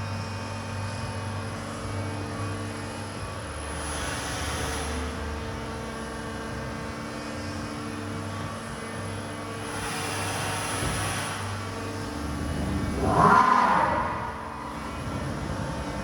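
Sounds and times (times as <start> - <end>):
milling machine motor drone: 0.0 - 16.0
machine hiss: 9.6 - 11.6.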